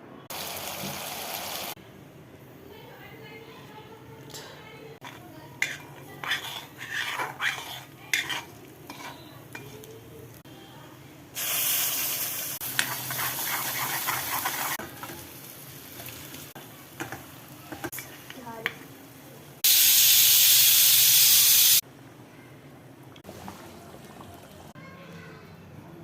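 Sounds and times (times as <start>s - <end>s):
food sizzling in a pan: 0.3s - 1.8s, 5.0s - 10.4s, 11.4s - 21.8s
spoon scraping a pan: 5.0s - 10.0s, 12.6s - 15.3s.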